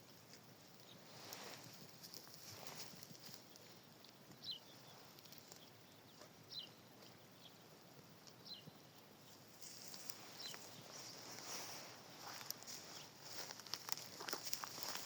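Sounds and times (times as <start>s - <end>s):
small bird chirping: 0.8s - 11.6s.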